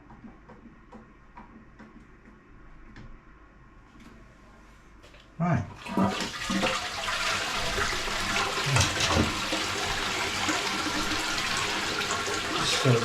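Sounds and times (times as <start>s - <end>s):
toilet flushing: 5.7s - 13.0s.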